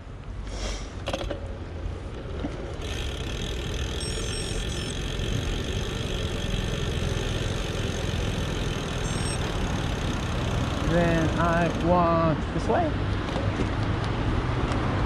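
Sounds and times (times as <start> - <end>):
bike wind and road noise: 0.0 - 15.0
faint high chirps: 4.0 - 5.0, 9.0 - 9.5.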